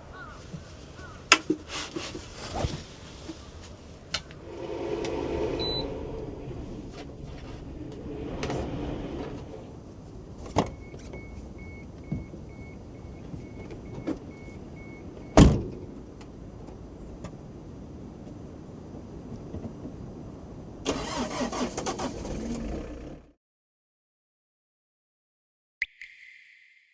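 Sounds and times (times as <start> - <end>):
vehicle low rumble: 2.4 - 23.3.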